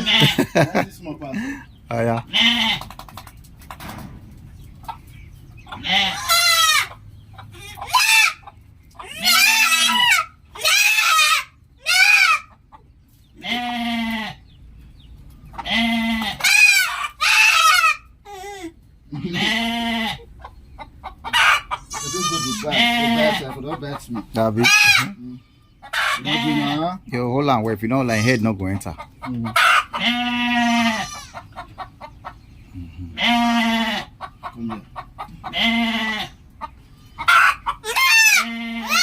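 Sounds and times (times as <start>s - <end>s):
goats bleating: 0.0s - 0.8s, 2.2s - 2.9s, 5.8s - 7.0s, 9.0s - 12.5s, 13.4s - 14.4s, 15.6s - 20.3s, 21.8s - 23.7s, 24.6s - 27.0s, 29.6s - 31.5s, 33.0s - 34.8s, 35.4s - 36.4s, 37.2s - 39.0s.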